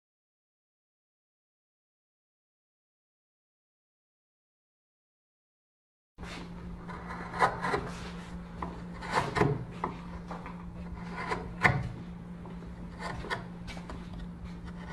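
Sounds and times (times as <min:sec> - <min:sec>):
scraping and rubbing on wood: 0:06.2 - 0:14.9
steady low hum: 0:06.2 - 0:14.9.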